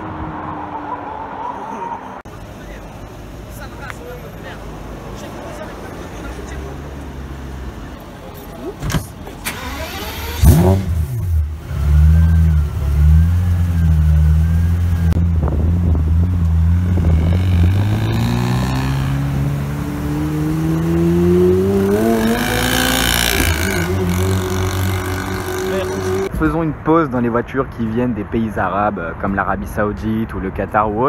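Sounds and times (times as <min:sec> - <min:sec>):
car engine revving and accelerating: 0:09.5 - 0:26.3.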